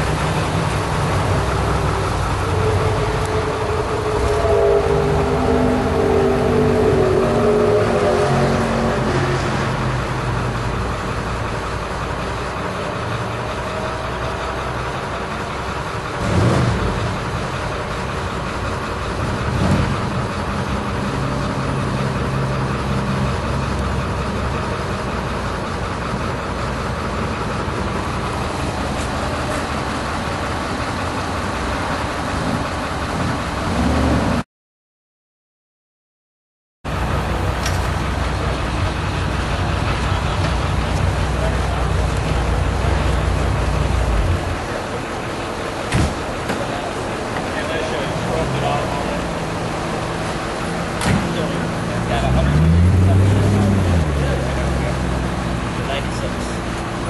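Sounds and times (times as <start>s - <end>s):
higher tone: 0.0s - 16.0s
car engine running: 0.0s - 34.4s, 36.9s - 57.0s.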